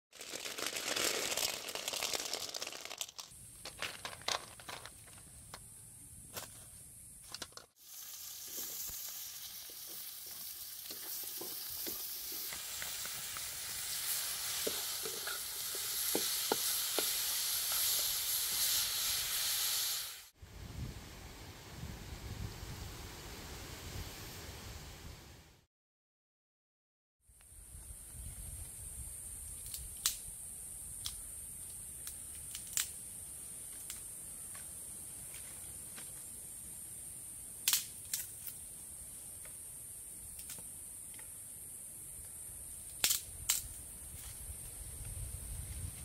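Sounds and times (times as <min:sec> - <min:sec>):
thin high hiss: 0:05.6 - 0:25.2
vegetables sizzling in a wok: 0:07.7 - 0:20.4.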